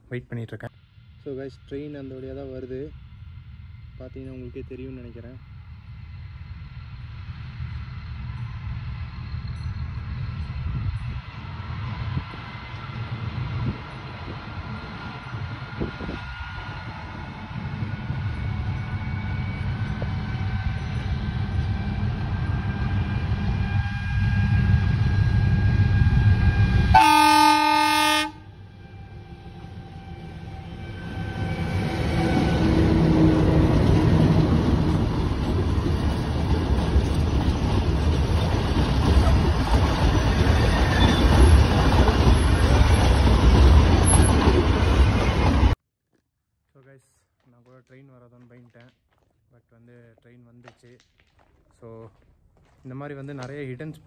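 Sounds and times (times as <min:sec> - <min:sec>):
diesel locomotive engine rumble: 0:00.0 - 0:45.8
train horn blast: 0:26.0 - 0:34.1.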